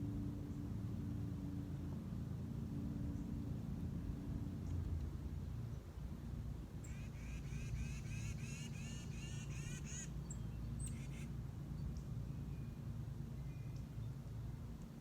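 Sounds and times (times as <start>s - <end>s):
small bird calling: 6.8s - 11.3s.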